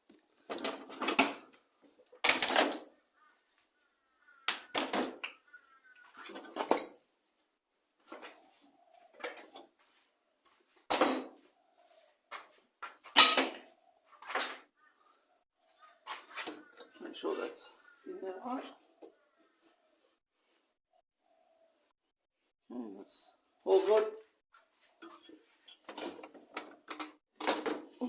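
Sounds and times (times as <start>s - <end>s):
metal tools clattering on workbench: 2.2s - 2.8s, 10.9s - 11.3s, 13.2s - 13.6s, 25.0s - 27.9s.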